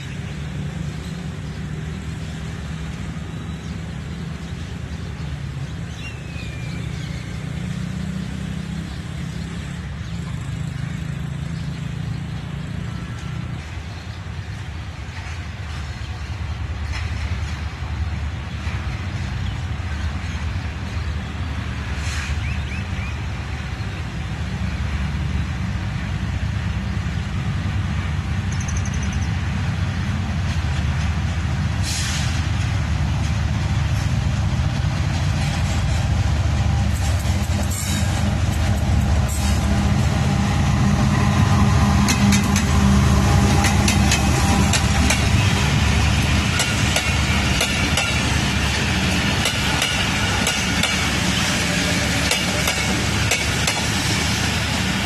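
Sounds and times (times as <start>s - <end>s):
locomotive rumbling: 0.0s - 55.0s
short air hisses: 22.0s - 22.4s, 31.8s - 32.5s
wheels clicking over rail joints: 41.9s - 54.3s.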